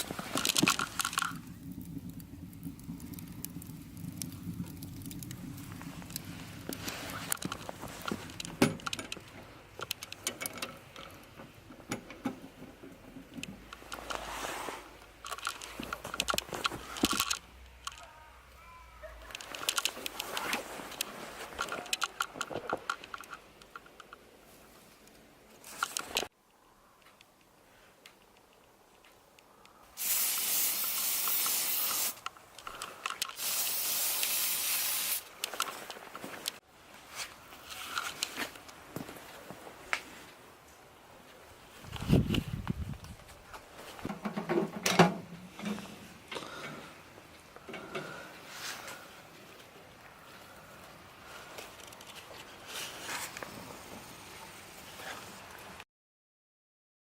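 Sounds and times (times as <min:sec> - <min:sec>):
rustling handling noise: 0:00.0 - 0:11.6, 0:13.2 - 0:18.1, 0:19.1 - 0:26.3, 0:30.9 - 0:46.7
small clicks and crackles: 0:00.0 - 0:14.4, 0:15.0 - 0:40.8, 0:45.7 - 0:55.8
hissing spray bursts: 0:30.0 - 0:32.2, 0:33.4 - 0:35.3.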